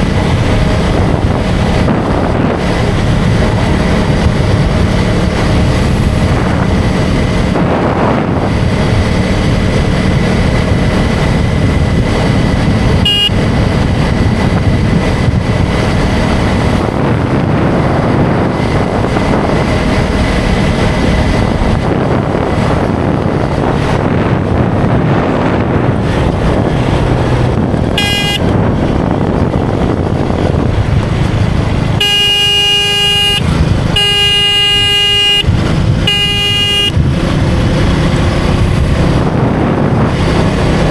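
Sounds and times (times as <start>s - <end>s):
motorcycle engine running: 0.0s - 40.9s
wind noise: 0.0s - 40.9s
vehicle horn honking: 13.0s - 13.5s, 27.9s - 28.6s, 32.0s - 37.1s.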